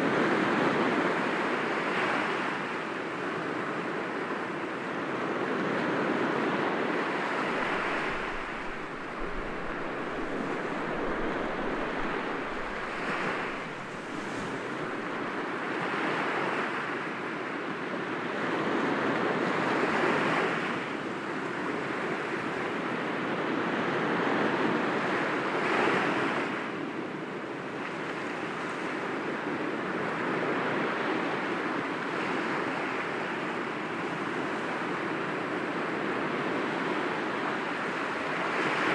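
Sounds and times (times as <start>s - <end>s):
waves breaking against rocks: 6.9s - 16.6s.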